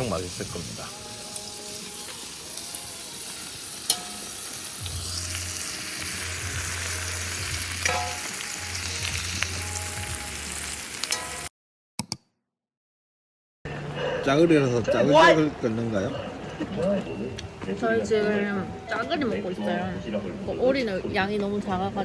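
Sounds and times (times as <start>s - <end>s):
food sizzling in a pan: 0.0s - 11.5s.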